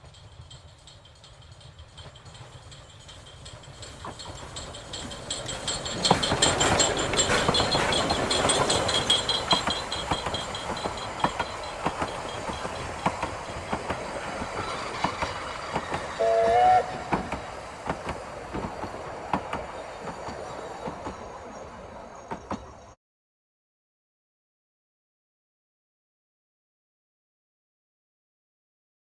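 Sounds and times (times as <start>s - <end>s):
steam train wheels clicking: 0.0s - 23.0s
train whistle: 14.6s - 17.7s.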